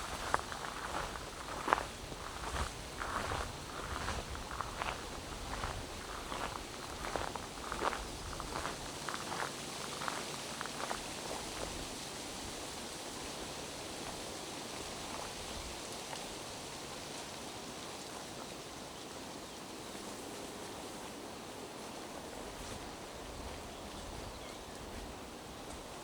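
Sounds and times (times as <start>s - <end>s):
footsteps crunching on wet trail: 0.0s - 12.6s, 21.8s - 26.0s.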